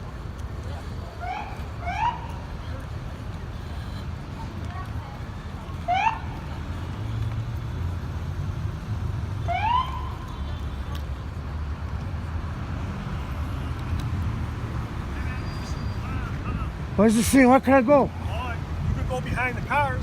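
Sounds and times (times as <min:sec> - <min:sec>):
police siren whoop: 0:09.5 - 0:10.1.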